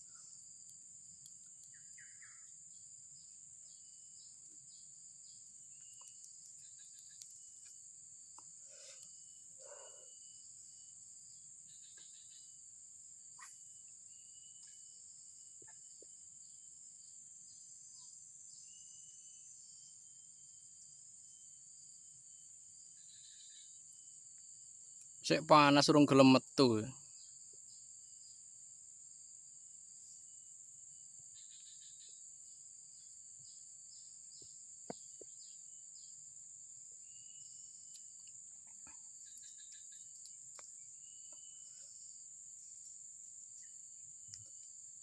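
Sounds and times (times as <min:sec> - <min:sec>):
insect chorus drone: 0:00.0 - 0:45.0
bird chirps: 0:01.5 - 0:07.8, 0:13.4 - 0:15.0, 0:37.1 - 0:42.0.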